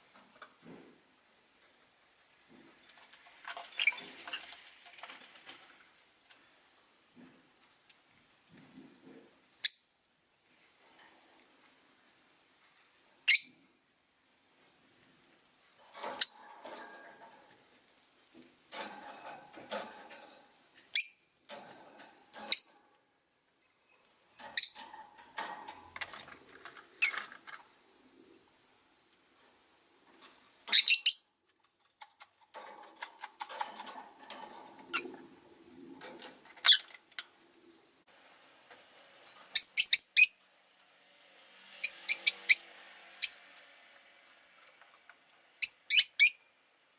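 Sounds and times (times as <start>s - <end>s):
birds chirping sharply: 41.8s - 43.4s.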